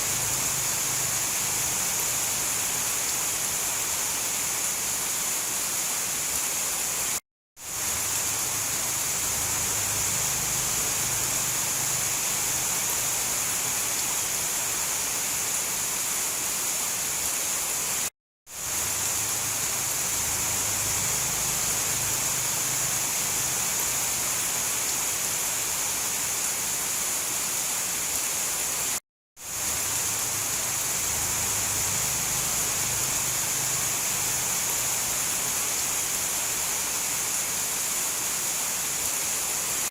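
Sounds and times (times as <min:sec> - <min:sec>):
steady dense rain: 0:00.0 - 0:39.9.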